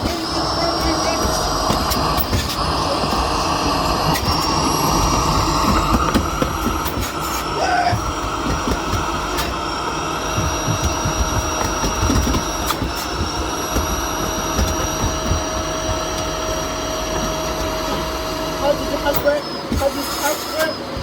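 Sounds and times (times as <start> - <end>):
vacuum cleaner whine: 0.0 - 21.0.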